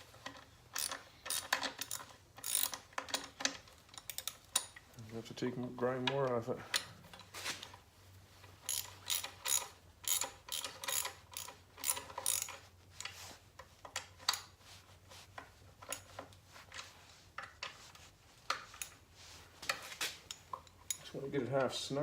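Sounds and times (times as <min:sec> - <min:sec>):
ratchet wrench clicking: 0:00.7 - 0:04.8, 0:08.7 - 0:12.6.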